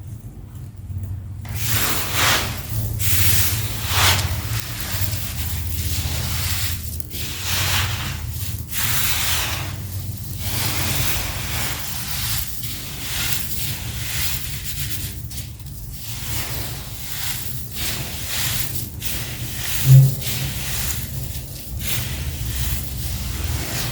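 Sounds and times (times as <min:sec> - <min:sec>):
cement clumps crumbling and grinding: 0:01.4 - 0:23.9.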